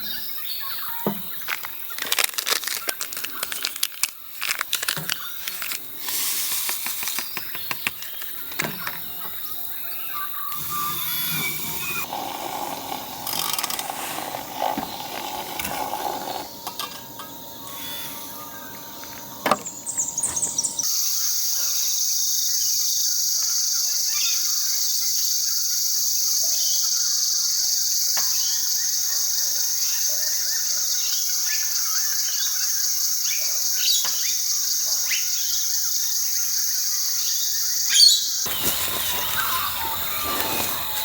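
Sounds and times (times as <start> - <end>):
shrill insect chorus: 0.0 - 41.0
bird chirps: 17.6 - 21.9, 37.9 - 41.0.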